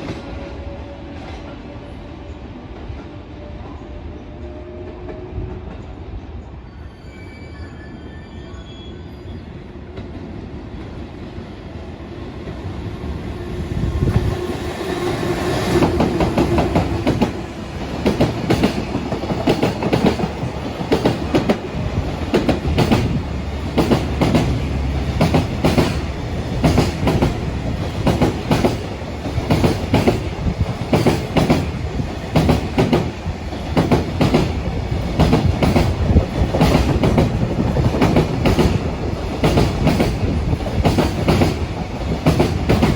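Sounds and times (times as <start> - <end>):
train wheels clacking on rails: 14.0 - 42.9.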